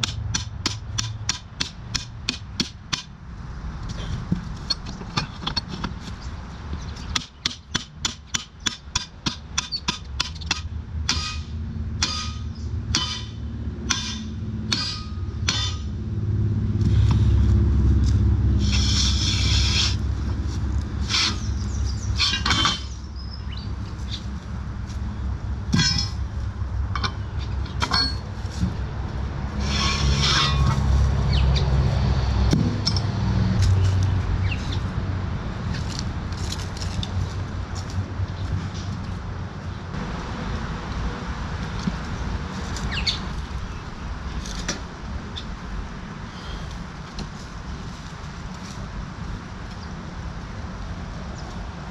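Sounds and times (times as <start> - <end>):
hammer striking stands and timber: 0.0 - 3.1, 7.1 - 15.9, 25.7 - 26.3, 32.5 - 33.7
low rumble: 10.7 - 42.7
harsh scraping: 16.8 - 23.0, 25.7 - 34.9.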